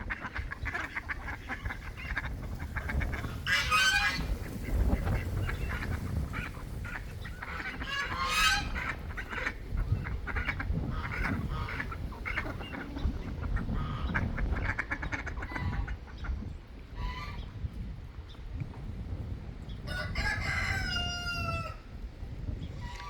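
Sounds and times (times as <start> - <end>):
ducks quacking: 0.0 - 17.6, 22.7 - 23.0.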